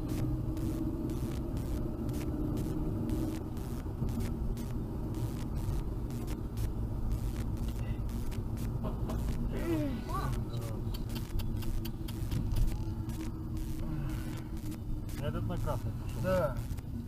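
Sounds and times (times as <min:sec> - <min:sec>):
car engine hum: 0:00.0 - 0:17.0
road rumble: 0:00.0 - 0:17.0.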